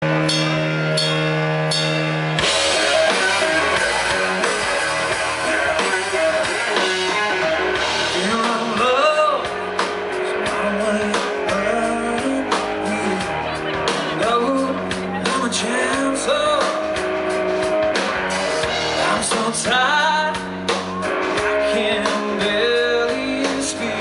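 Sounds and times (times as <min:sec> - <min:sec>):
picked guitar accents: 0:00.0 - 0:24.0
rock band playing live: 0:00.0 - 0:24.0.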